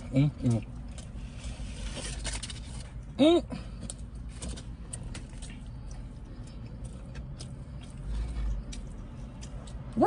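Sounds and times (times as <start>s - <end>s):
person chewing: 0.0s - 10.0s
steady low rumble: 0.0s - 10.0s.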